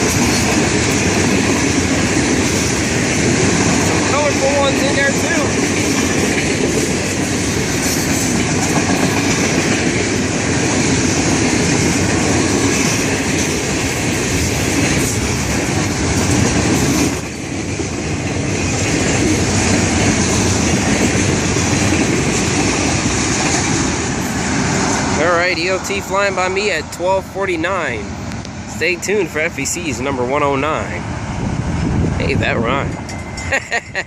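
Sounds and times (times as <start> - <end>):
wheels clattering over rail joints: 0.0 - 26.2
freight train rumbling past: 0.0 - 34.0.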